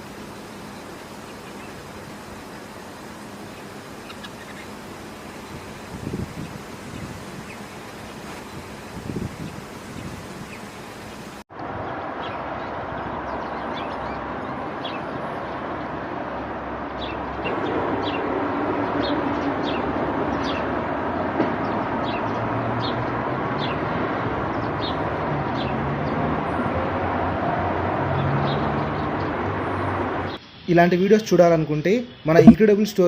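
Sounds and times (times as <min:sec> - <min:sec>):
bird chirping: 0:02.4 - 0:04.8.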